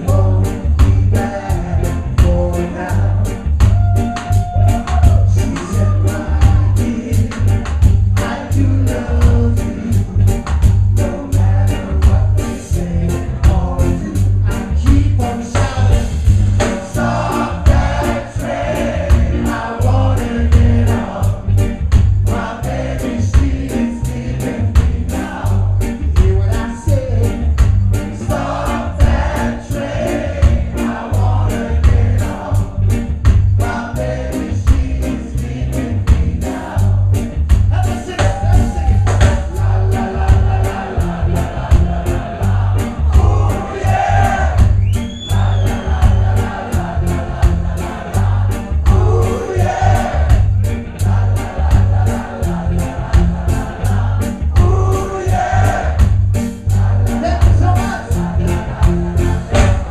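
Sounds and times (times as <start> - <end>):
person singing: 0.0 - 7.6, 48.9 - 50.2, 54.5 - 55.9
live band playing: 0.0 - 59.9.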